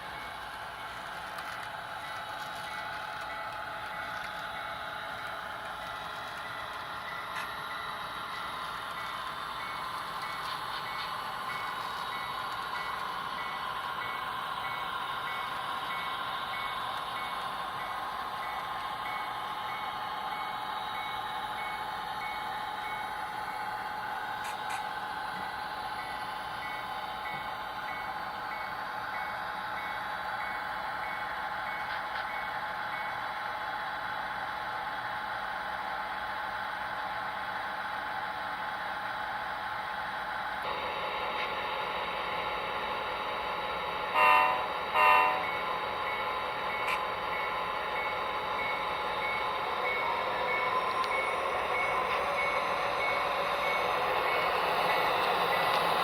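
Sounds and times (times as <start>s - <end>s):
train horn blasts: 44.1s - 45.6s
locomotive bell ringing: 44.1s - 56.0s.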